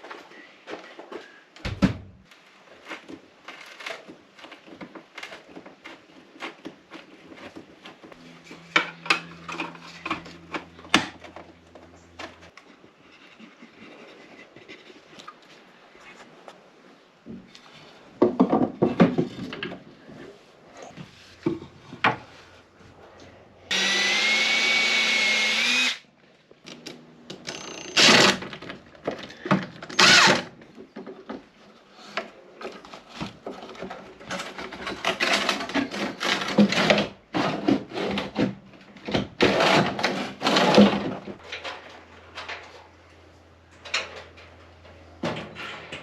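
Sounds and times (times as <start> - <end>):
knocks and rustling of handling tools: 0.0 - 13.6, 17.2 - 20.2, 20.9 - 22.6, 26.6 - 46.0
power drill whining: 23.7 - 26.0, 27.4 - 28.4, 29.9 - 30.5.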